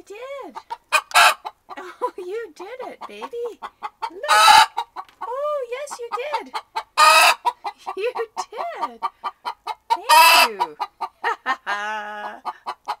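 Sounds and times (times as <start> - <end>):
hen clucking: 0.2 - 13.0
hen squawking harshly: 4.2 - 4.9, 7.0 - 7.6, 10.0 - 10.7
hen held call: 10.0 - 10.8.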